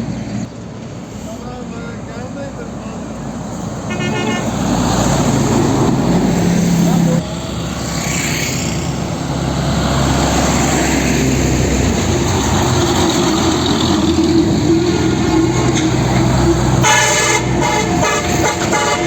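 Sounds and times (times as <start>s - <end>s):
truck engine drone: 0.0s - 19.0s
truck horn: 3.9s - 5.1s, 16.7s - 19.0s.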